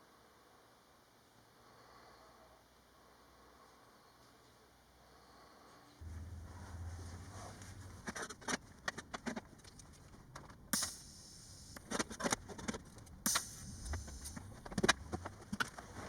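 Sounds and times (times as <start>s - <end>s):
low hum: 6.0s - 8.5s, 13.2s - 16.0s
short sharp hisses: 13.3s - 14.6s.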